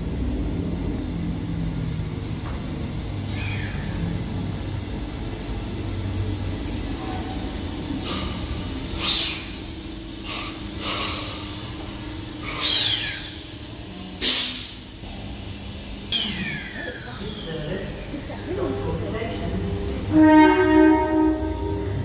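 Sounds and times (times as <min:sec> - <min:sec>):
train rumble and hum: 0:00.0 - 0:22.0
sharp air hisses: 0:08.0 - 0:13.4, 0:14.1 - 0:15.4.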